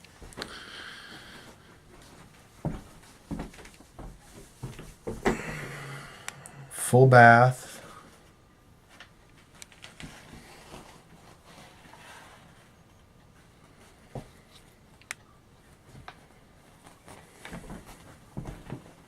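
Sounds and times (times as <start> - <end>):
faint footsteps: 0.0 - 6.4, 15.7 - 19.0.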